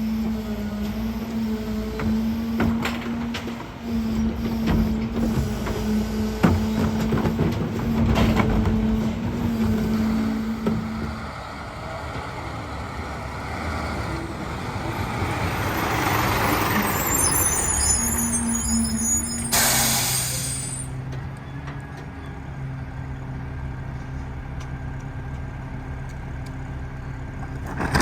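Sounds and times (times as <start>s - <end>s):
garbage truck hum: 0.0s - 23.8s
air hissing: 17.6s - 20.9s.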